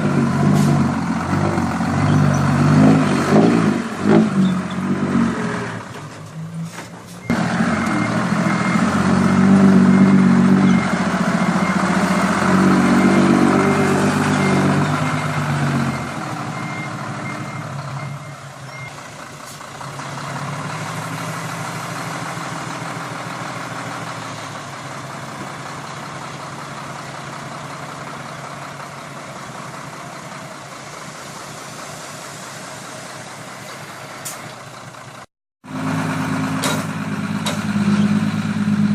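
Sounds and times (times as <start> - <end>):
diesel truck engine running: 0.0 - 38.9
reversing beeper: 7.2 - 19.1.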